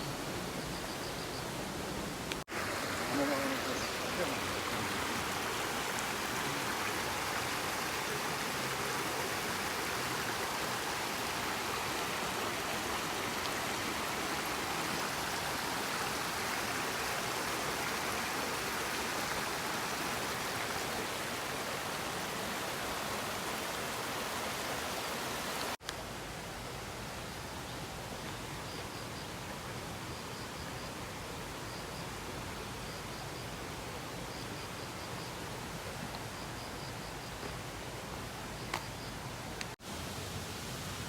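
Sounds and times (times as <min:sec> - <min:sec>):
water rushing: 0:01.5 - 0:28.1.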